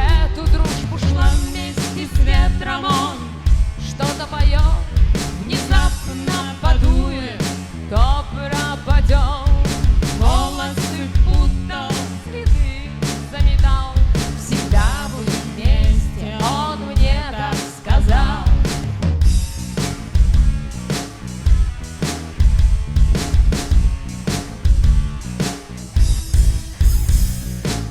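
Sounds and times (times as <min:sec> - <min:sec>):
drum kit beat: 0:00.0 - 0:27.9
rock band playing live: 0:00.0 - 0:27.9.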